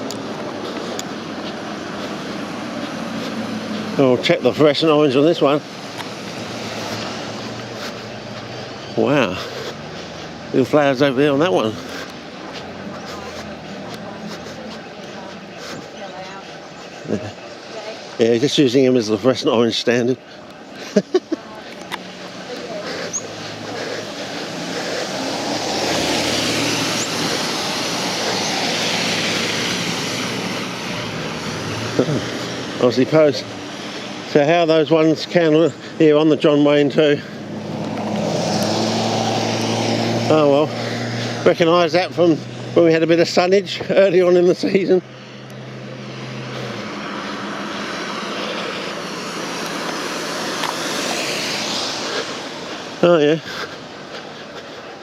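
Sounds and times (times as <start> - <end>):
vehicle passing: 0.0 - 55.0.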